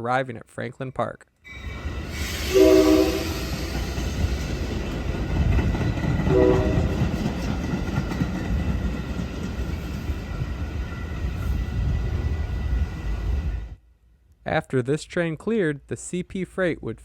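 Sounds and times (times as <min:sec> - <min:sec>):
train rumbling on rails: 0:01.5 - 0:13.8
train horn blast: 0:02.3 - 0:03.7, 0:06.3 - 0:07.0.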